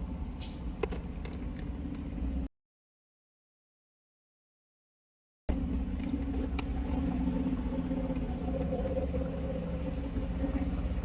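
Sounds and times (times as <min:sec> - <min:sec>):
car cabin rumble: 0:05.5 - 0:11.0.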